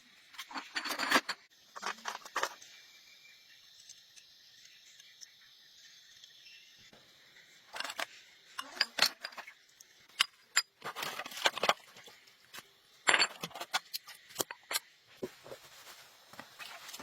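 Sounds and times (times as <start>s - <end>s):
metallic clinks and clatters: 7.7s - 12.2s, 13.0s - 14.9s.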